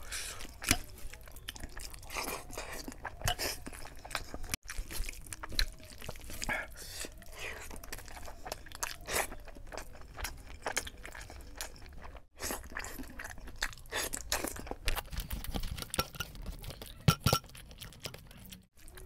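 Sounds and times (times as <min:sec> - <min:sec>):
wet chewing with clicks: 0:00.1 - 0:19.0.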